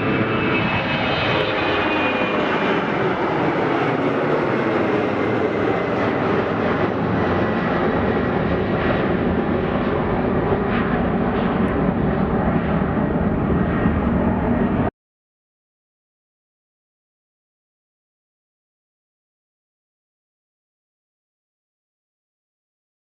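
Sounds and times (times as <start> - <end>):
airliner engines running: 0.0 - 14.9.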